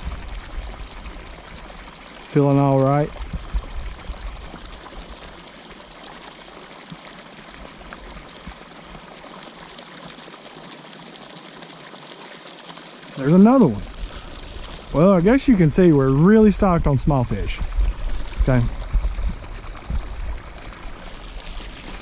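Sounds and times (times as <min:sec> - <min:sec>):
water pouring into pond: 0:00.0 - 0:22.0
low thumps: 0:16.7 - 0:20.4.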